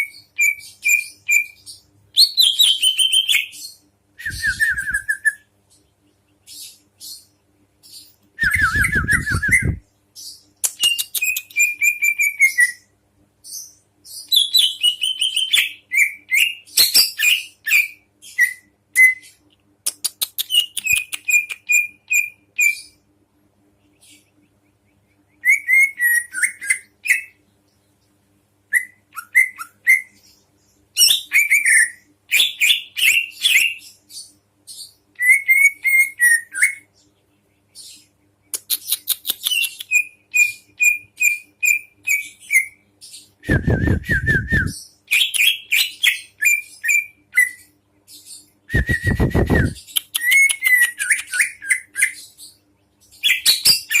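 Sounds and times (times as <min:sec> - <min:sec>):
songbird singing: 0:00.0 - 0:23.0
faint steady hum: 0:00.0 - 0:54.0.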